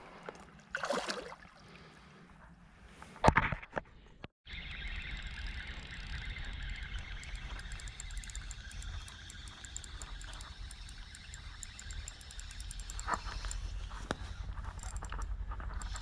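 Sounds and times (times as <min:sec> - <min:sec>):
fast fine ticking: 0:05.0 - 0:16.0.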